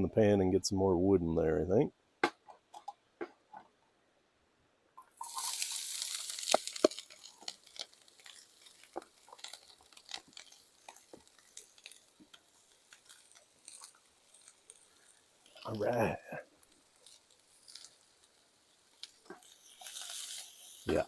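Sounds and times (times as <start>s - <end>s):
food sizzling in a frying pan: 5.0s - 21.0s.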